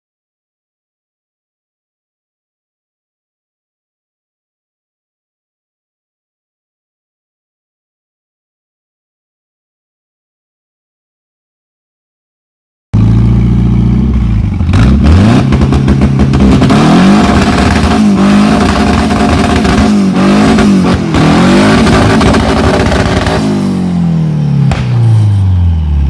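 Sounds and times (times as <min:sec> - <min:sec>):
car engine revving hard: 0:14.7 - 0:25.2.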